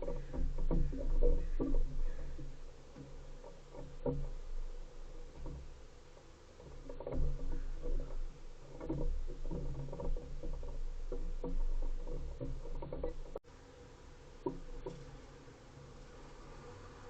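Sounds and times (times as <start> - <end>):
animal tapping and scuffing: 0.0 - 13.4.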